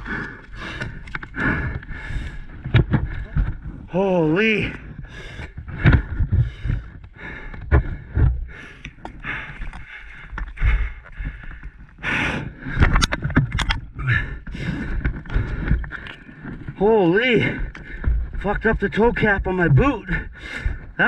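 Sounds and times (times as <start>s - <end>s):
person breathing hard: 0.0s - 3.8s, 4.8s - 16.6s, 20.1s - 21.0s.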